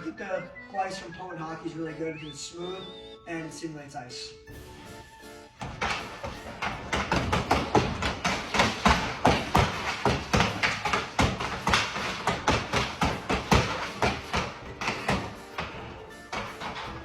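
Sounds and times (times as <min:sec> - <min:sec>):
hockey stick tapping puck: 0:05.6 - 0:17.0.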